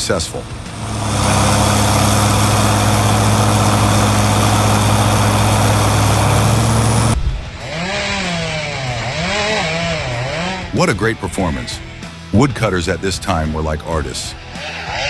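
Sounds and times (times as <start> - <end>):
tractor engine running: 0.0 - 10.8
sound swooping up and down in pitch: 14.5 - 15.0.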